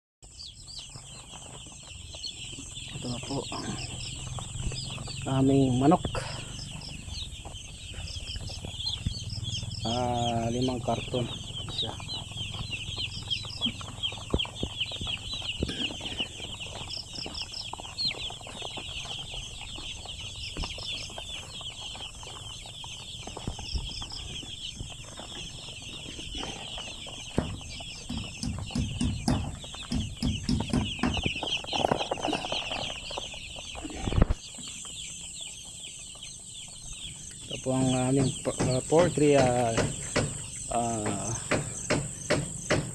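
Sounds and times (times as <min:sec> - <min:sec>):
chickens cheeping: 0:00.2 - 0:42.9
knocks and clatter: 0:26.4 - 0:32.6, 0:37.5 - 0:42.9
loud thump: 0:38.2 - 0:42.9.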